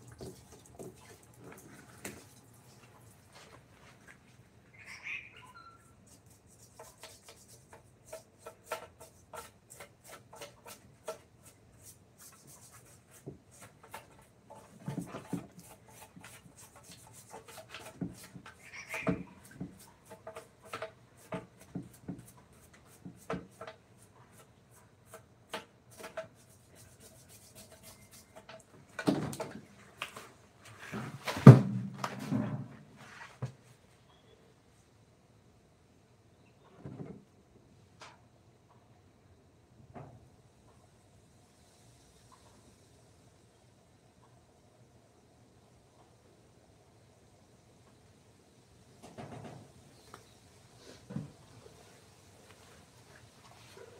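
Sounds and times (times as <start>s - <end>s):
hand tools tapping and scraping wood: 0.0s - 4.4s, 6.1s - 32.7s, 50.9s - 51.8s.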